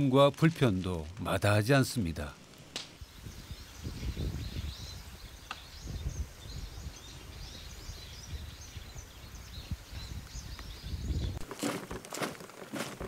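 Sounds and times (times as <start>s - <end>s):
small birds twittering: 1.6s - 11.4s
wind rumble on microphone: 3.0s - 11.4s.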